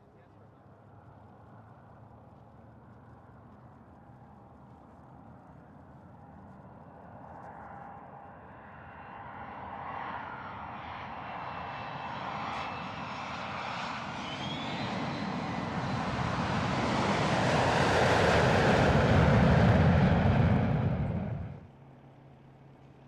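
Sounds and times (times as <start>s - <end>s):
airplane engine roar: 7.2s - 23.0s
faint rising whine: 13.8s - 21.7s.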